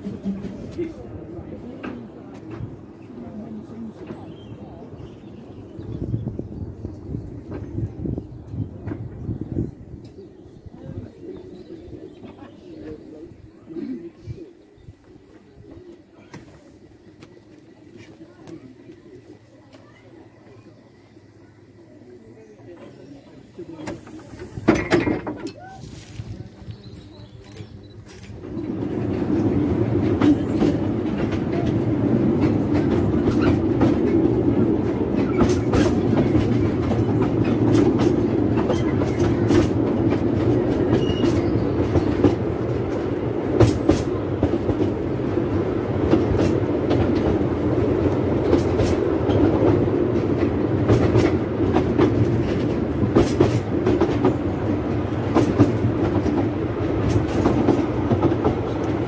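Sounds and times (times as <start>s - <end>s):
train wheels rumbling: 0.0s - 59.0s
sharp clicks from rails: 27.4s - 59.0s.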